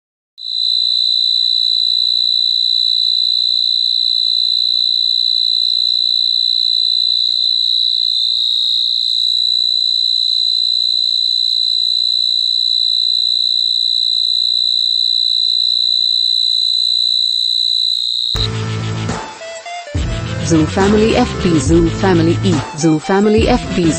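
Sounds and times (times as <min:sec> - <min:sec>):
cricket trilling: 0:00.4 - 0:18.5.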